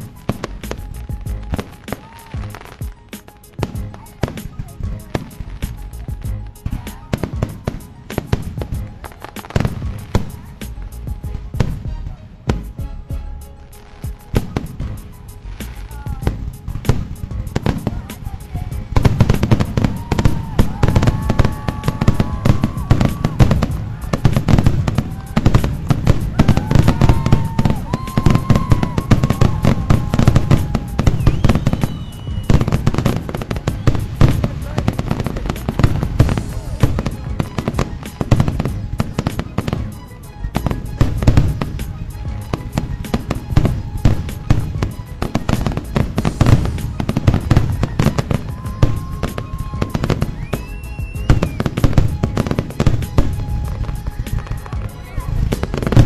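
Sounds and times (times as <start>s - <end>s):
fireworks bangs and crackles: 0.0s - 56.0s
fireworks whistles: 0.0s - 56.0s.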